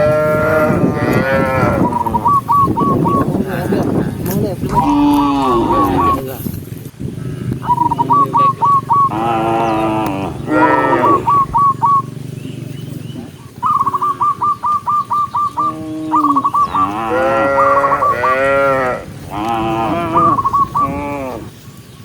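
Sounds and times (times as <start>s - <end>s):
cattle mooing: 0.0s - 2.0s, 4.7s - 6.4s, 9.0s - 11.6s, 15.6s - 21.6s.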